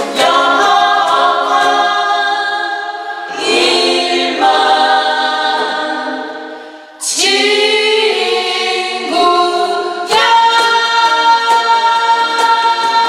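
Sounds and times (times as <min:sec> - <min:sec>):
choir singing held chords: 0:00.0 - 0:13.0.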